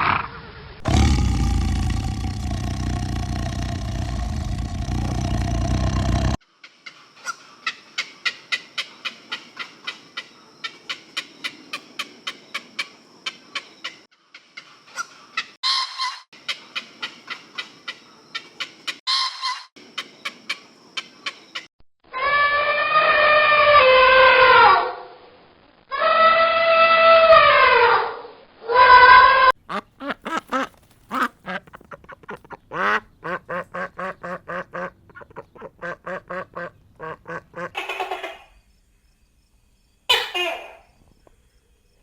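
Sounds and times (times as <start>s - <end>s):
long loud animal calls: 0.8s - 6.4s, 25.9s - 29.5s.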